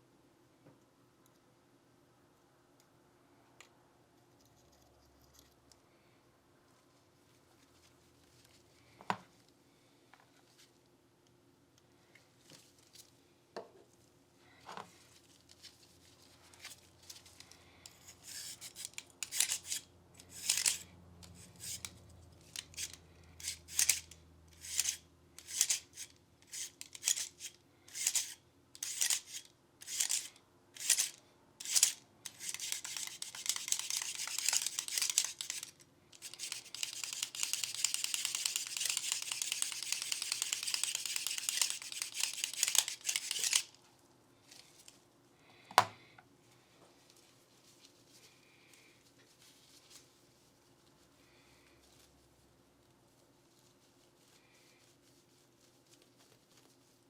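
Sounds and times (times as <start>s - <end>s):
scratchy scrubbing of pistol parts: 14.8s - 43.8s.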